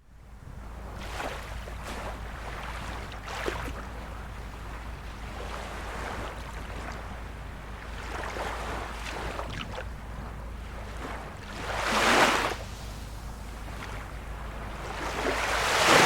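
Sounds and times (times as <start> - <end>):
small waves lapping at shore: 0.0 - 16.0.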